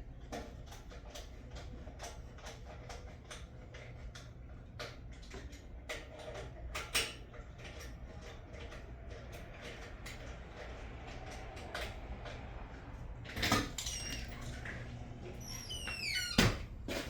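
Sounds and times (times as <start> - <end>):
low steady hum: 7.3 - 17.0.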